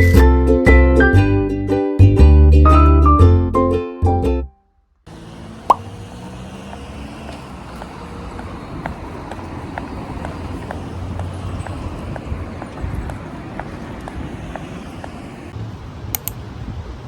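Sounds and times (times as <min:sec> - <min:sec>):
traffic hum: 0:04.9 - 0:17.0
footsteps clicking: 0:06.2 - 0:15.4.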